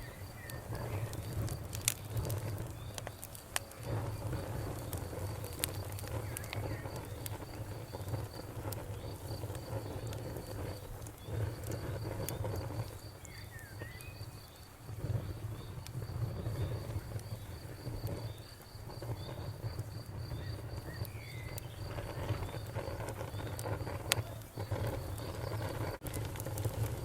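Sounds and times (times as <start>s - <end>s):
crickets chirping: 0.0s - 27.0s
wood fire crackling and popping: 0.0s - 27.0s.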